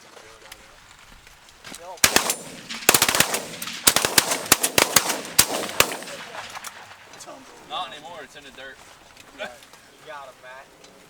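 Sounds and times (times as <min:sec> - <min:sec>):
shotguns firing volley: 0:00.6 - 0:08.5.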